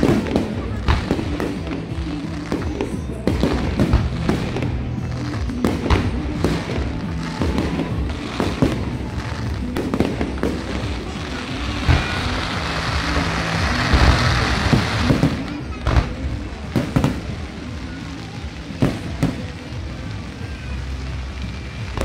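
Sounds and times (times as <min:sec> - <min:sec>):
fireworks banging: 0:00.0 - 0:22.0
music playing: 0:00.0 - 0:22.0.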